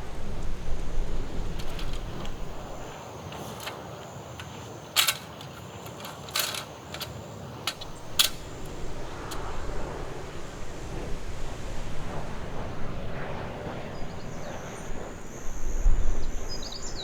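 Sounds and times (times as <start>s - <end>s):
low wind rumble: 0.0s - 3.2s, 7.6s - 17.0s
clicks and knocks of small objects: 3.3s - 8.5s.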